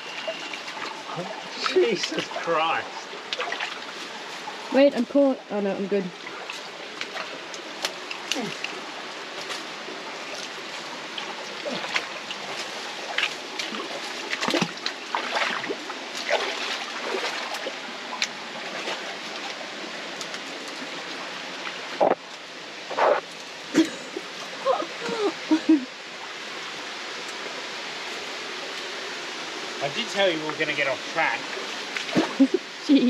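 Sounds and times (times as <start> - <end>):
creek water running: 0.0 - 33.0
short splashes and knocks: 3.3 - 4.0, 11.2 - 19.6, 31.9 - 32.5.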